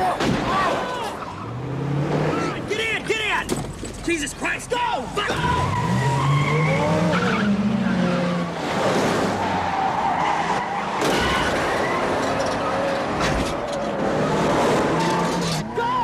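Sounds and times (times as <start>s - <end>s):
tyres squealing and skidding: 0.0s - 16.0s
car engine revving: 5.2s - 15.7s.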